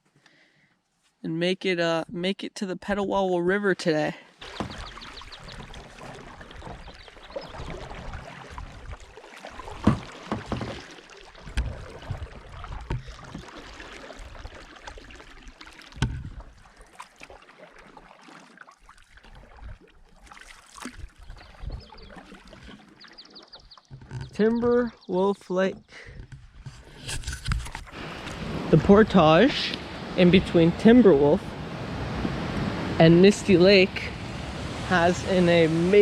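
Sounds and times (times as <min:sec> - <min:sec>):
paddle knocking against hull: 0:04.4 - 0:16.6, 0:20.2 - 0:28.9
paddle strokes splashing in water: 0:04.4 - 0:25.1, 0:25.7 - 0:36.0.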